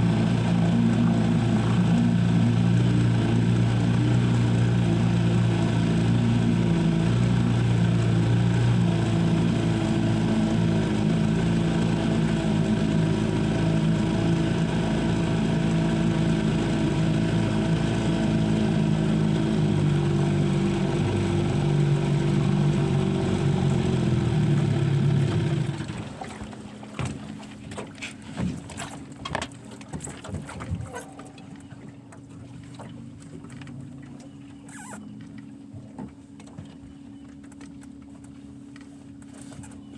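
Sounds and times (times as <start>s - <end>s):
engine running: 0.0s - 29.9s.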